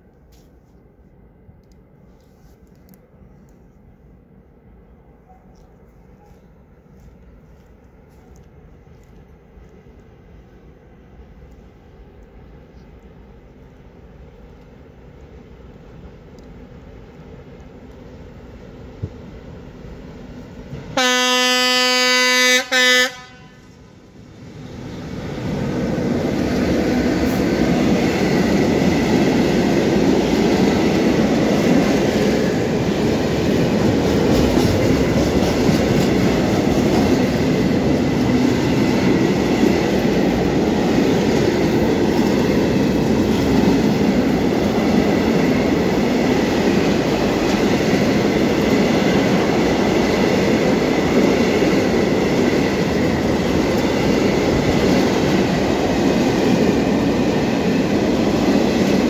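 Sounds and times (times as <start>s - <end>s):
freight train rolling past: 0.0s - 59.0s
locomotive horn blast: 21.0s - 23.8s.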